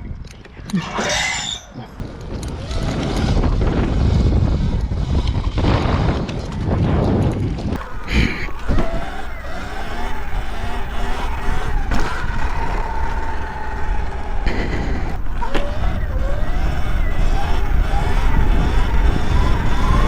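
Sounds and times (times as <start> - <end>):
wind buffeting microphone: 1.8 - 20.0
electric motor whine: 7.8 - 20.0.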